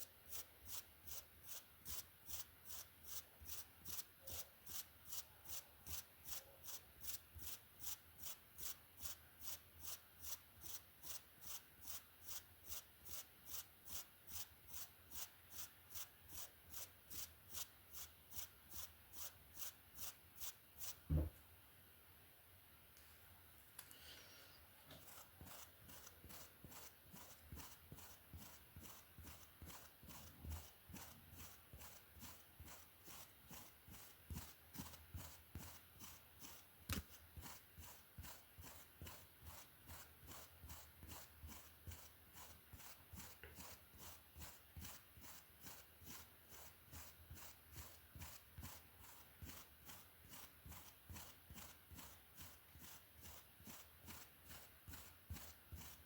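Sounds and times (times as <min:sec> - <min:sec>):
hairbrush stroking through hair: 0:00.0 - 0:21.1, 0:23.8 - 0:56.0.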